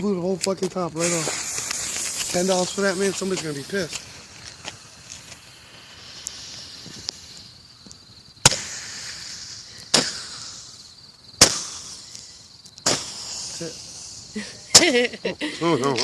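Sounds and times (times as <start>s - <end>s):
high hiss: 0.0s - 16.0s
roman candle bangs: 8.4s - 9.2s, 9.8s - 10.6s, 11.4s - 13.7s.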